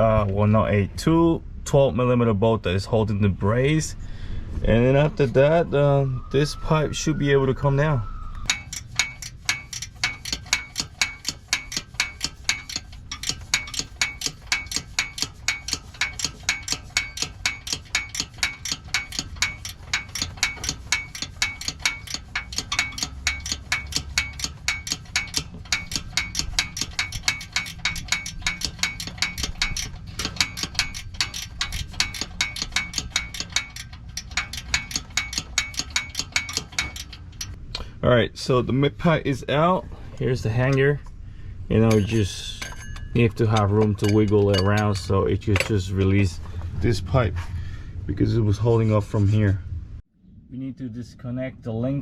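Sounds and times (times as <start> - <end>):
hand ratchet clicking: 8.4 - 37.6, 41.8 - 45.8.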